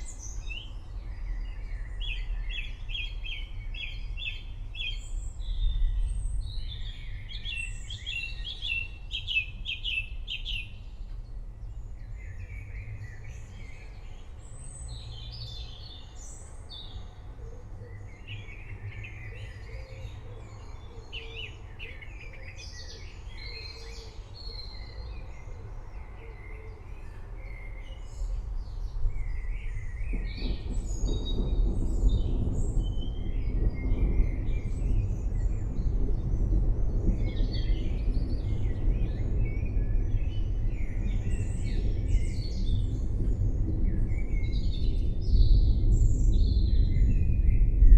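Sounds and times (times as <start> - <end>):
birds chirping and whistling: 0.0 - 16.9, 26.3 - 47.9
low rumble: 28.6 - 47.9.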